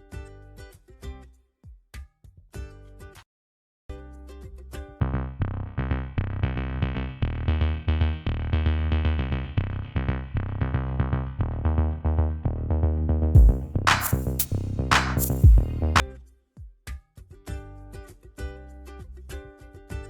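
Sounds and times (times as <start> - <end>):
electronic music with drum machine: 13.4 - 16.0.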